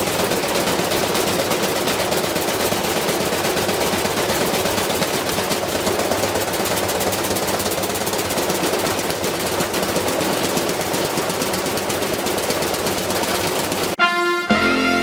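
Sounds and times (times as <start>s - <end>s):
rapid rattling clatter: 0.0s - 14.0s
music: 14.0s - 15.0s.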